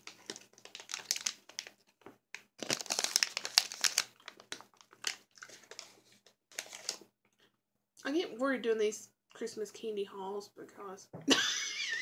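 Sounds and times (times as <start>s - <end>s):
plastic candy bag crinkling: 0.0s - 7.1s.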